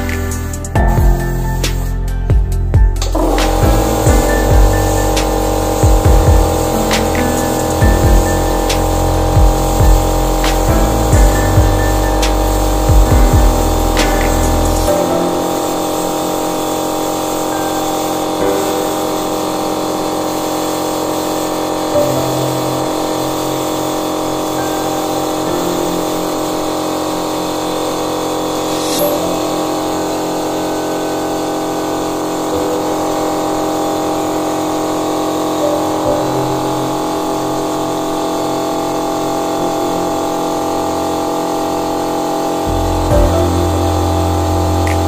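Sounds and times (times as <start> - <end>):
background music: 0.0 - 19.5, 42.7 - 45.0.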